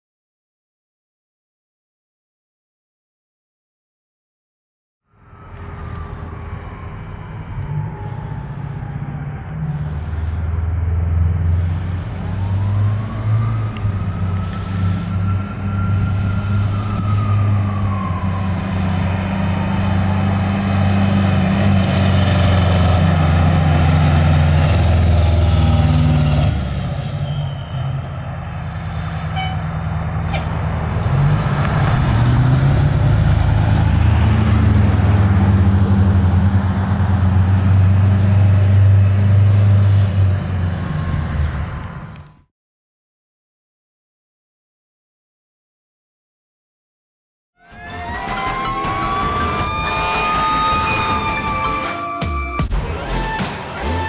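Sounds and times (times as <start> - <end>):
siren winding down: 5.1 - 26.6, 47.6 - 54.0
diesel engine revving: 5.3 - 42.3, 47.7 - 54.0.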